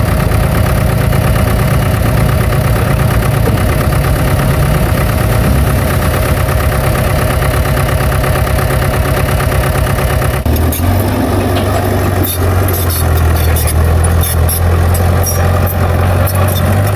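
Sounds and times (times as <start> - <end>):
earthmoving machinery diesel engine: 0.0 - 16.9.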